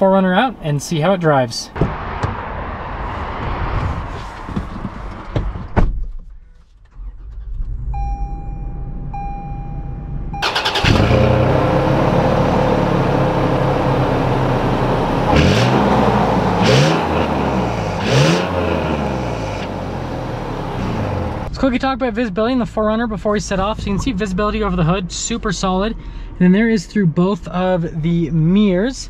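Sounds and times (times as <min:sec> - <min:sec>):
car engine starting and idling: 0:06.7 - 0:28.8
electronic beeps: 0:08.0 - 0:10.5
engine revving: 0:10.4 - 0:21.5.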